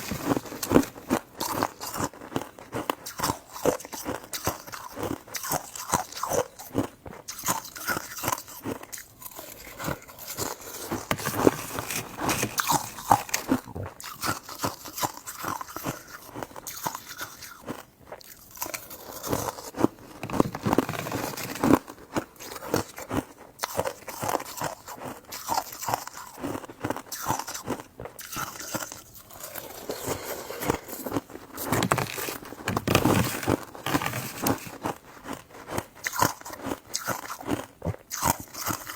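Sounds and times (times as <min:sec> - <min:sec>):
person chewing soft food: 0:00.0 - 0:38.9.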